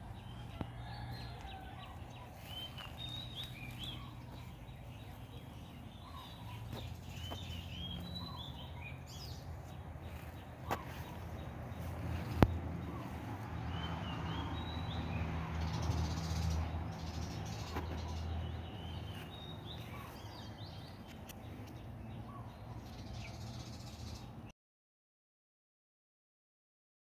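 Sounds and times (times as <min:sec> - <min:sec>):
low outdoor rumble: 0:00.0 - 0:24.4
birds calling: 0:00.0 - 0:24.5.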